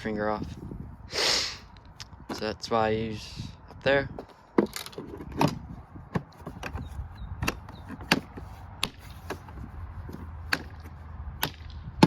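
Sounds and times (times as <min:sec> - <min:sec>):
plastic box clicks and knocks: 0:04.2 - 0:11.8.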